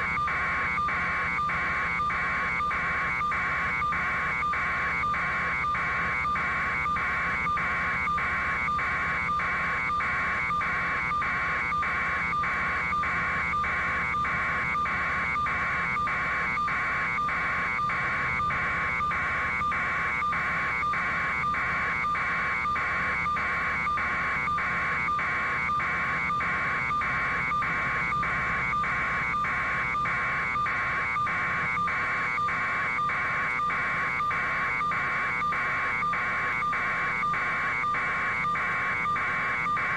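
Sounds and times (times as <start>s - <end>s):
pulsing electronic warning buzzer: 0.0s - 39.9s.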